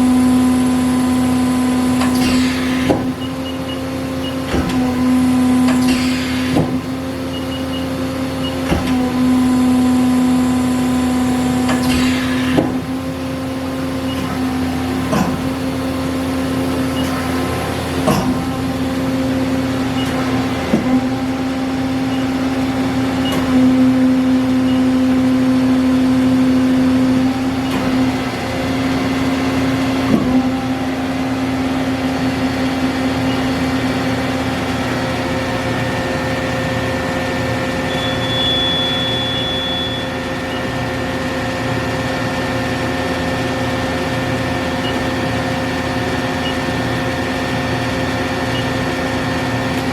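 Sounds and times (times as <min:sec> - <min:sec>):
sharp mechanical clunk: 0:02.0 - 0:03.2, 0:11.7 - 0:12.8, 0:15.0 - 0:15.6, 0:18.0 - 0:18.6.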